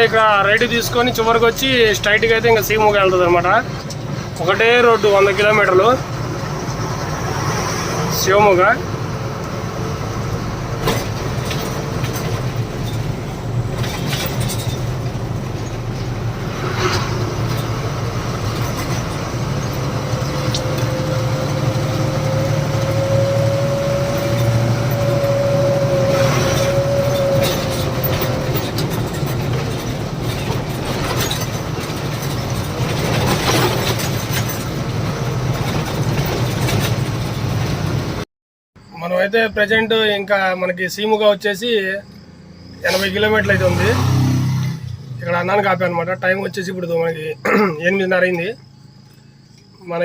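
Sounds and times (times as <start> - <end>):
truck engine and road noise: 0.0 - 50.0
short knocks and rattles: 10.8 - 16.3, 26.5 - 37.9.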